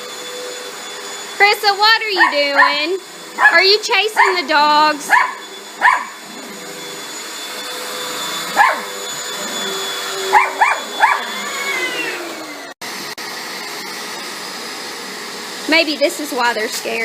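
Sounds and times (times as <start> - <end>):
vacuum cleaner motor whine: 0.0 - 17.0
dog barking: 2.2 - 3.6, 4.2 - 4.5, 5.1 - 6.2, 8.5 - 8.9, 10.3 - 11.3.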